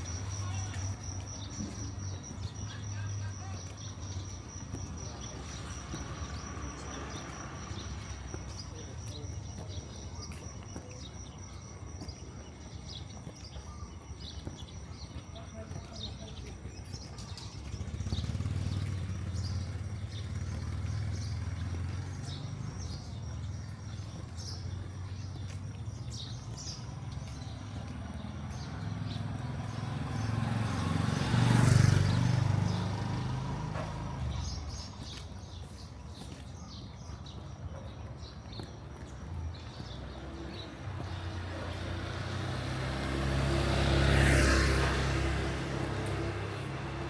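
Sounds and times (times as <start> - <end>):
birds chirping: 0.0 - 47.0
passing traffic rumble: 0.0 - 47.0
vehicle passing close: 17.3 - 23.5, 27.4 - 35.1, 40.3 - 47.0.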